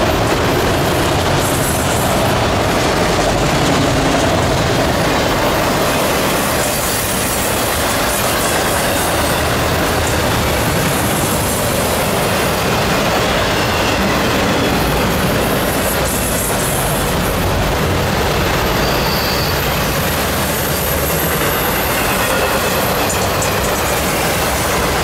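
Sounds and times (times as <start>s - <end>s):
freight cars rolling on rails: 0.0s - 25.0s
faint high squeal: 18.7s - 19.8s.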